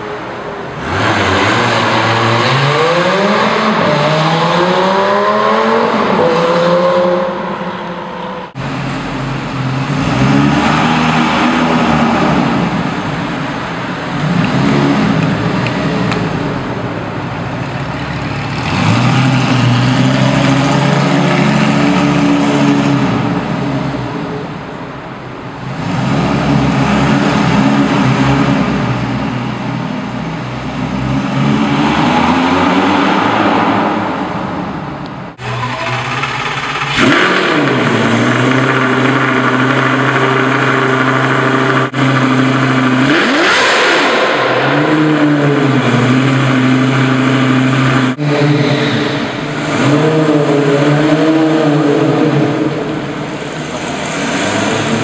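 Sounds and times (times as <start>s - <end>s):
car engines revving and accelerating: 0.0s - 55.0s
car engine idling: 8.5s - 25.8s, 34.8s - 43.4s.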